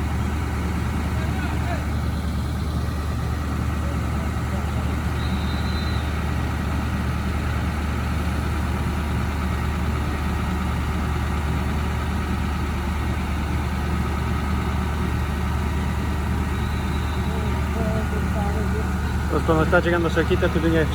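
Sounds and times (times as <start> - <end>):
crane engine humming: 0.0 - 20.9.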